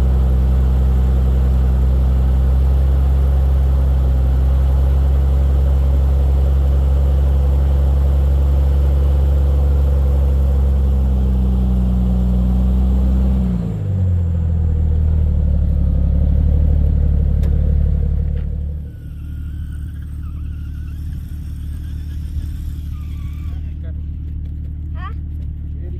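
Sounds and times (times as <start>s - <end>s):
car engine running under load: 0.0s - 25.9s.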